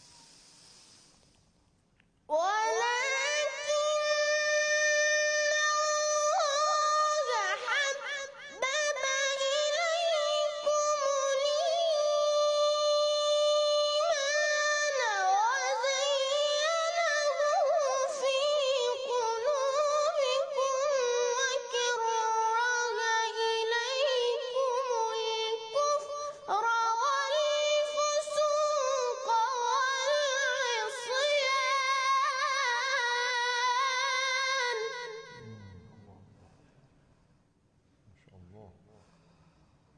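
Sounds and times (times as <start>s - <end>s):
person chanting recitation: 27.0s - 36.4s.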